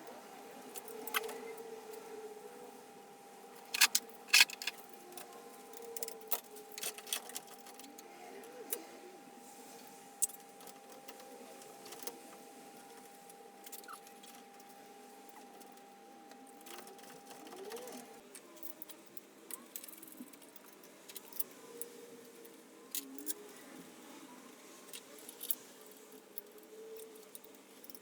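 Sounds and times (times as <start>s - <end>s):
clinks of hand tools and parts: 3.7s - 4.8s.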